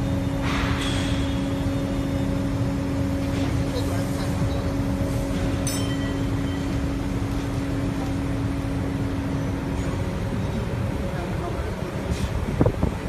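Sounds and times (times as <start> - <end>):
machine hum: 0.0 - 13.0
sharp metallic clink: 5.6 - 6.7.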